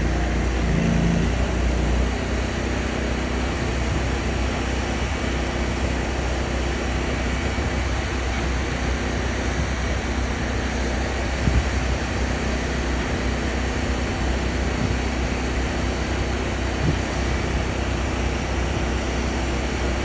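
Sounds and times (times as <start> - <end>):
truck engine droning: 0.0 - 20.0.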